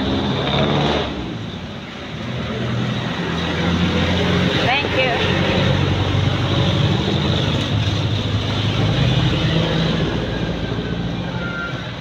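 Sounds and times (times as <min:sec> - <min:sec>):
tyre and road noise: 0:00.0 - 0:12.0.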